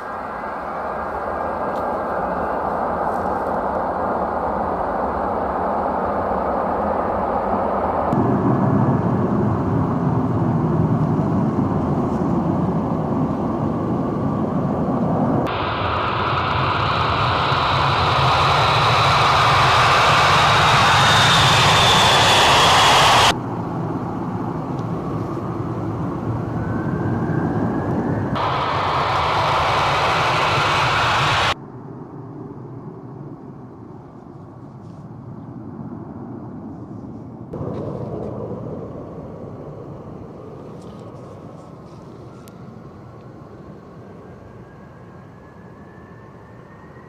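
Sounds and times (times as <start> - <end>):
high engine whine: 0.0 - 32.6
jet engines roaring: 0.0 - 34.0, 37.6 - 47.0.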